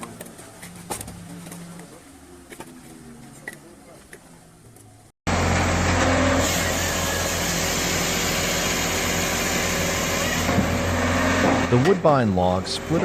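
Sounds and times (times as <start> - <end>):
hydraulic log splitter running: 5.3 - 13.0.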